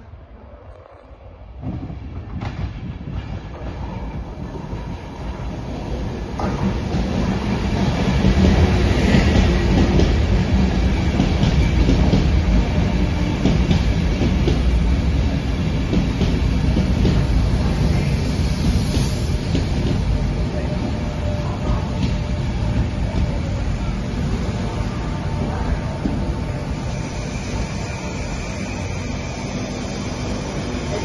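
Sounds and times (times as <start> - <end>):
passenger train passing: 0.0 - 31.0.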